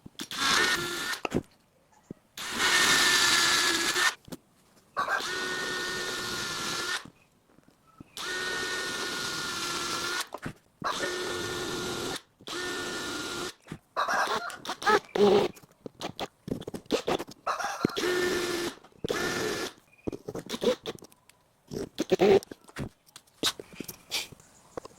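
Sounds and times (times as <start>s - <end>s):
small power tool whining: 0.2s - 1.3s, 2.4s - 4.2s, 5.2s - 7.1s, 8.2s - 13.6s, 17.9s - 19.8s.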